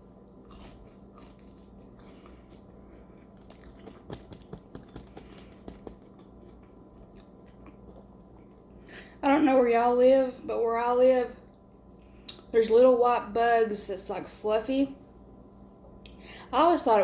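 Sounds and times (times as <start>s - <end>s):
person chewing food: 0.0s - 9.1s.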